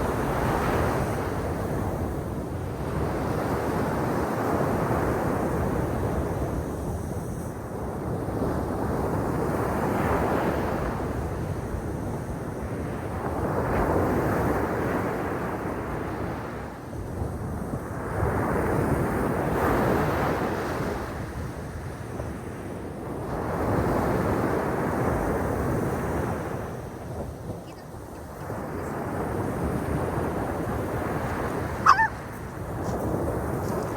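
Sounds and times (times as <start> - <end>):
wind on microphone: 22.9 - 33.9
sea waves breaking on shore: 23.4 - 33.9.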